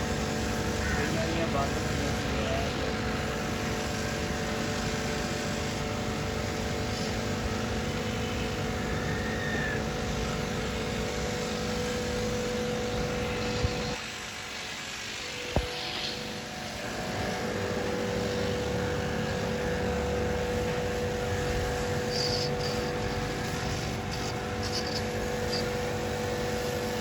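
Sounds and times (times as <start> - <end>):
machine hum: 0.0 - 27.0.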